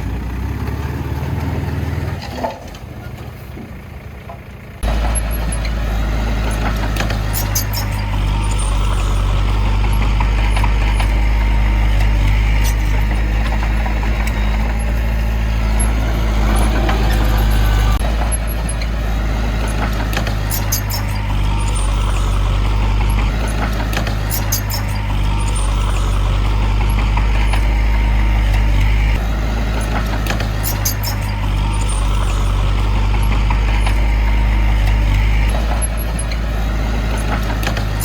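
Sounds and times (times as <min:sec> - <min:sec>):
heavy diesel engine running: 0:00.0 - 0:38.0
sharp clicks and clanks: 0:06.4 - 0:08.6, 0:19.6 - 0:21.8, 0:23.0 - 0:26.0, 0:26.7 - 0:32.2.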